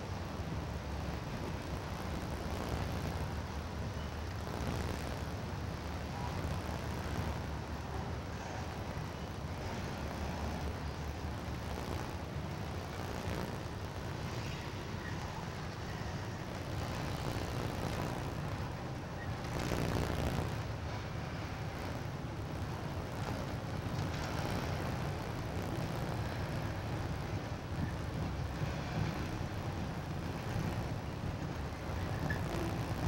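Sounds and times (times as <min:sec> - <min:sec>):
train wheels rumbling on bridge: 0:07.6 - 0:33.0.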